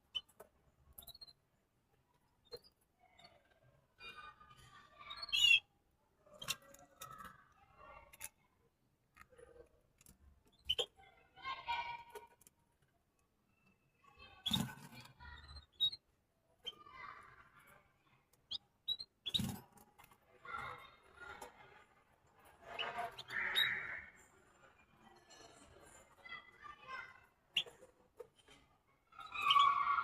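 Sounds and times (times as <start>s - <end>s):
small birds chirping: 0.0s - 1.7s, 2.4s - 5.7s, 10.0s - 11.1s, 13.4s - 21.5s, 22.6s - 24.3s, 29.1s - 30.0s
birds clicking in cage: 19.0s - 20.2s.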